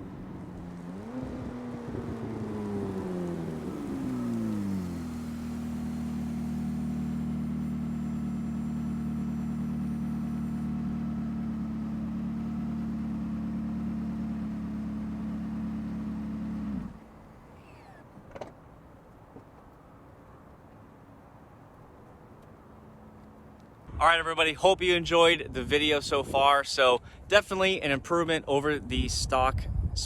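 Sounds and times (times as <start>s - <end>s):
sports car exhaust drone: 0.0s - 18.0s.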